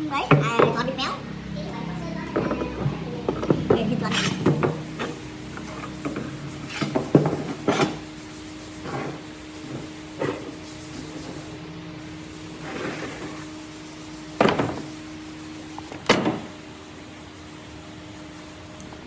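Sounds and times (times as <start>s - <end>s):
faint hum: 0.0s - 19.0s
wood knocks and scrapes: 6.0s - 8.0s.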